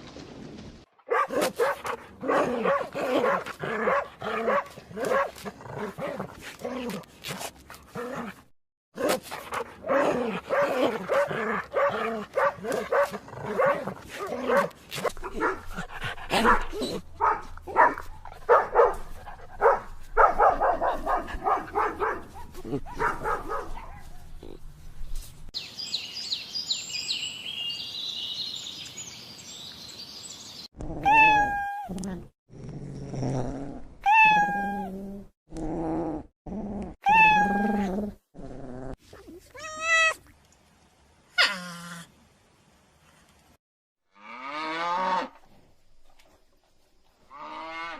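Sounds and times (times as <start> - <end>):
dog yipping and barking: 1.1 - 5.3, 9.5 - 15.7, 16.3 - 24.2, 31.0 - 31.9
cat meowing: 31.0 - 31.9, 34.0 - 34.9, 37.0 - 37.9, 39.6 - 40.2.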